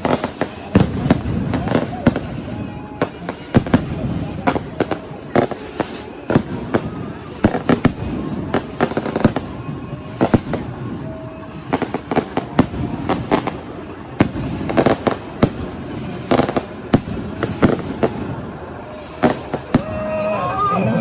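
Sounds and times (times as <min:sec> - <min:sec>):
firecrackers banging: 0:00.0 - 0:20.9
steady background din: 0:00.0 - 0:21.0.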